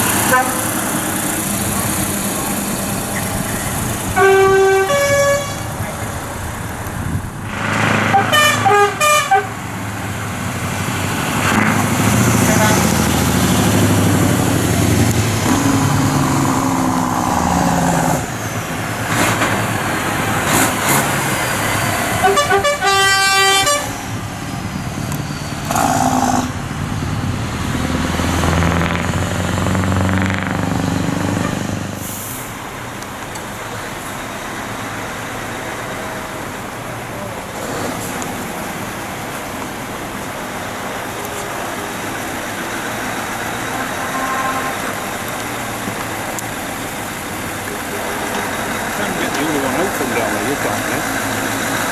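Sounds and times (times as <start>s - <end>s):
truck horn sounding: 0.0s - 0.9s, 4.1s - 5.9s, 7.7s - 9.7s, 11.4s - 13.4s, 22.1s - 24.0s, 43.4s - 45.1s
lorry engines passing: 0.0s - 51.9s.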